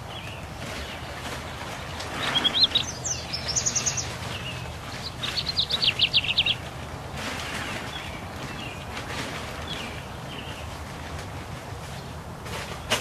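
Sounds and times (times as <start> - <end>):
songbird chirping: 0.0 - 10.9.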